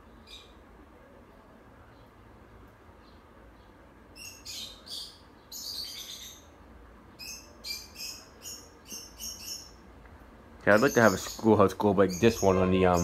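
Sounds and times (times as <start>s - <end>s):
small bird chirping: 0.0s - 0.6s, 2.9s - 10.0s, 10.6s - 13.0s
ceiling fan running: 0.0s - 13.0s.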